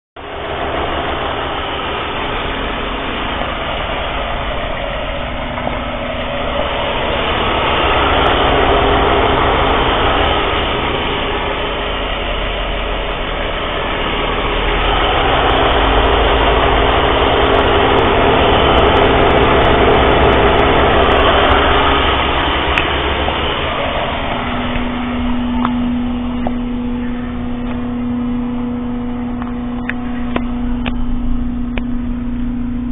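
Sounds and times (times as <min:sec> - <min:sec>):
car engine idling: 0:00.2 - 0:32.9
steady hum: 0:00.2 - 0:32.9.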